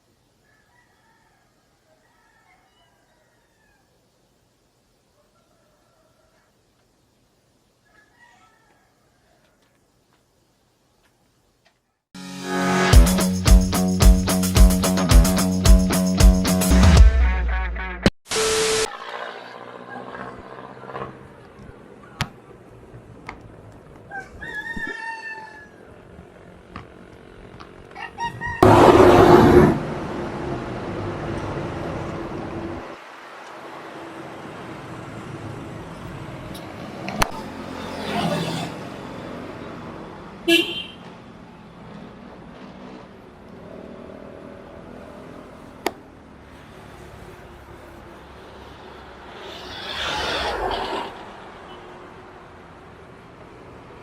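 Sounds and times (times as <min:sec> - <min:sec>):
rooster crowing: 0:00.4 - 0:04.0, 0:07.8 - 0:09.7, 0:24.1 - 0:26.1, 0:28.0 - 0:29.2
road traffic noise: 0:18.3 - 0:54.0
vehicle horn toot: 0:40.5 - 0:41.0.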